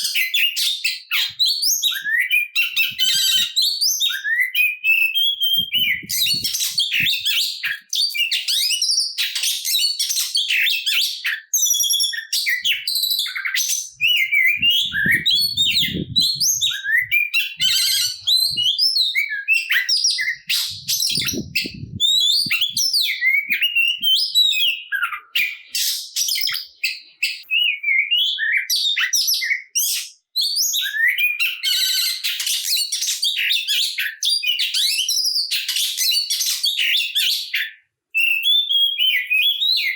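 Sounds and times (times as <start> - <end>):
bird singing whistles and trills: 0.0 - 39.9
faint low thumps: 20.8 - 22.5.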